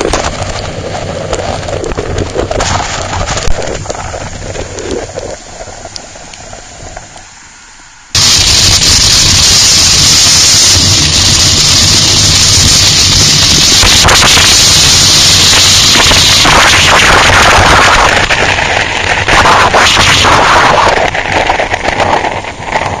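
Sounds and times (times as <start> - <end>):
wind rushing over microphone: 0.0 - 7.2, 8.1 - 23.0
heavy rain: 8.1 - 23.0.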